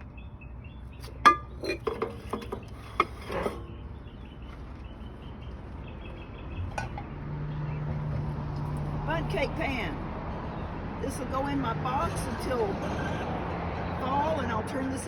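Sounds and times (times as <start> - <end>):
bakeware knocks and clinks: 1.2 - 2.7.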